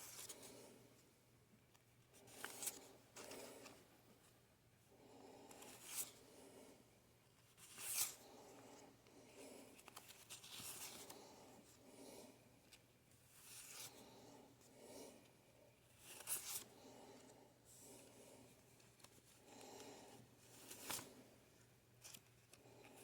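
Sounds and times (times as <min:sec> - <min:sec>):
faint paper rustling: 0:01.7 - 0:04.4, 0:07.2 - 0:11.8, 0:12.6 - 0:14.2, 0:15.8 - 0:23.0.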